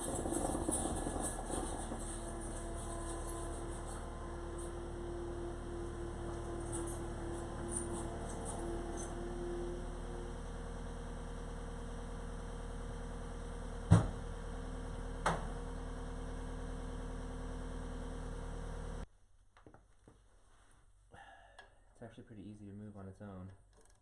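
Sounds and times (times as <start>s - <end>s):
sharp knocks: 13.9s - 14.2s.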